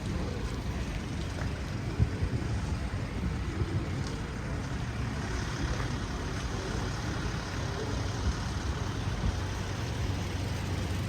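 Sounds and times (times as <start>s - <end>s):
street traffic rumble: 0.0s - 11.0s
vehicle engine running: 0.0s - 11.0s.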